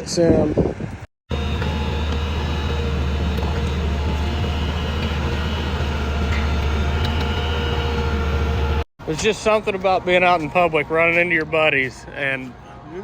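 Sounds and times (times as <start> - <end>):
heavy diesel engine droning: 1.3 - 8.9.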